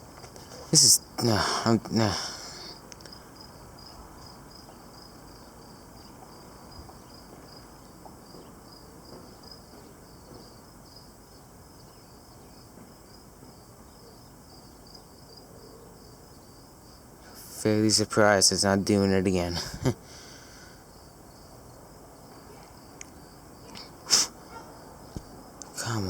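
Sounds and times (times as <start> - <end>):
crickets chirping: 0.0 - 26.0
faint background hiss: 0.0 - 26.0.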